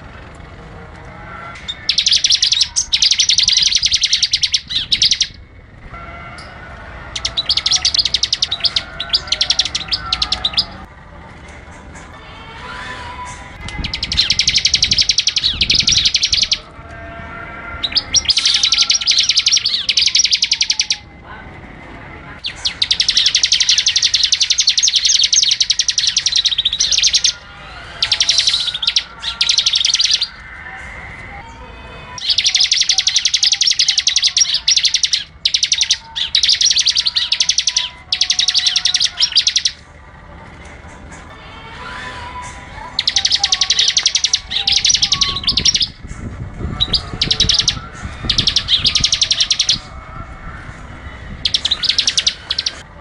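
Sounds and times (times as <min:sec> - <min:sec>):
songbird singing fast repeated notes: 0:01.7 - 0:05.4, 0:07.1 - 0:10.9, 0:13.7 - 0:16.7, 0:17.8 - 0:21.0, 0:22.4 - 0:27.4, 0:28.0 - 0:30.4, 0:32.2 - 0:39.8, 0:42.9 - 0:46.1, 0:46.7 - 0:49.9, 0:51.4 - 0:52.8.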